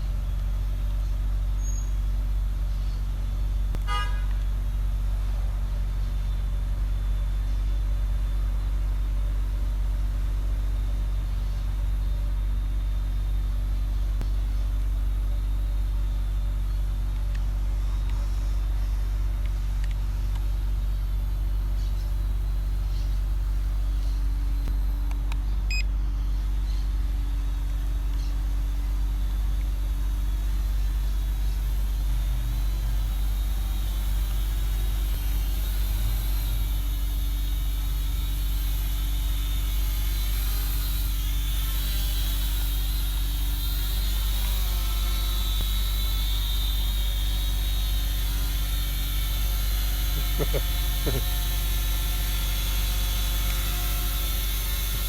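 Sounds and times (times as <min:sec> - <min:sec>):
vehicle engines rumbling: 0:49.6 - 0:51.7.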